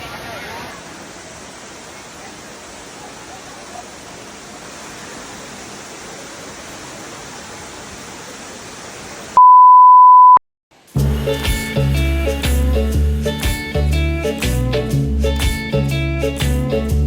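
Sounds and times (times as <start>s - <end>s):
waterfall rushing: 0.0s - 9.4s, 11.0s - 14.6s
loud pure beep: 9.4s - 10.4s
guitar and bass music: 11.0s - 17.0s.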